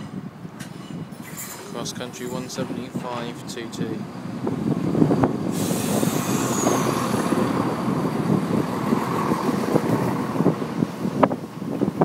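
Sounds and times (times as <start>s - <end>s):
diesel train rumbling: 0.0s - 12.0s
hiss: 5.5s - 7.2s.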